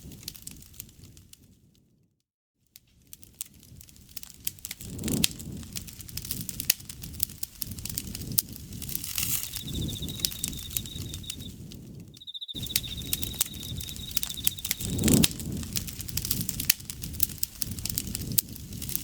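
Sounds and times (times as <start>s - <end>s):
campfire crackling and popping: 3.1s - 19.0s
insect trilling: 9.1s - 11.6s, 12.2s - 15.2s.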